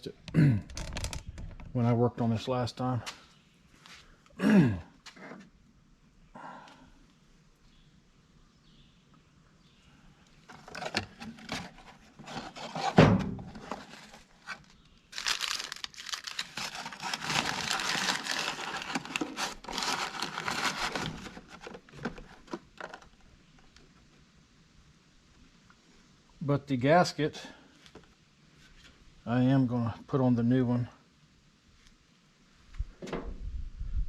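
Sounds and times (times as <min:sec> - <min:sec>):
packaging crinkling and tearing: 0:13.6 - 0:23.2.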